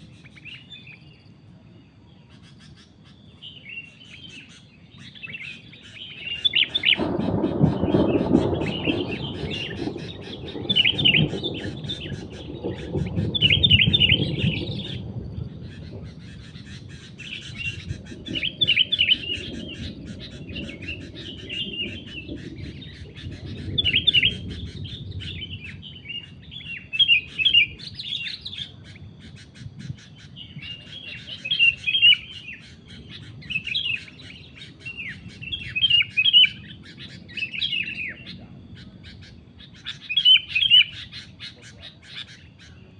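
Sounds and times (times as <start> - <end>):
bulbuls chirping: 0.0 - 42.9
low rumble: 6.4 - 26.8.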